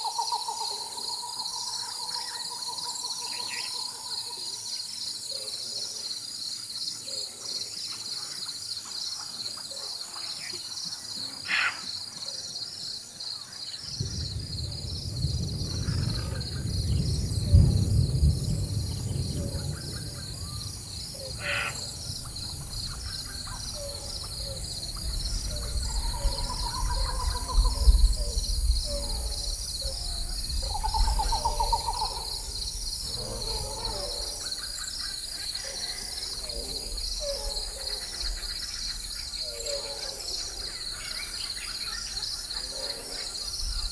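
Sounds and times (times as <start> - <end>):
insects chorus: 0.0 - 43.9
distant thunder rumbling: 13.9 - 34.8
bird calls: 16.0 - 43.9.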